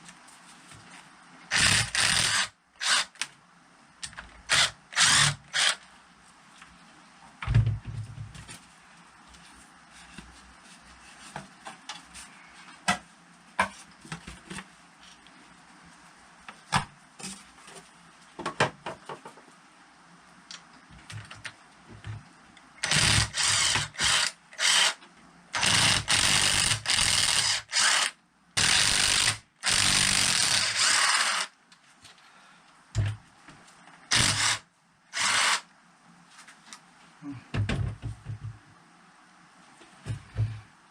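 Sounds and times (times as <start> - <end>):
power drill-driver bursts: 1.5 - 3.2, 4.5 - 5.8, 22.8 - 25.0, 25.6 - 31.5, 34.1 - 35.7.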